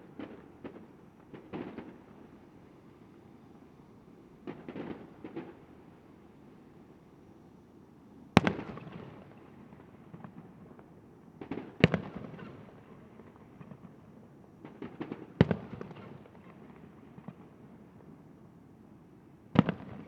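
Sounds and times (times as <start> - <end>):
firework pops and crackles: 0.0 - 2.2, 4.4 - 5.7, 11.4 - 17.6.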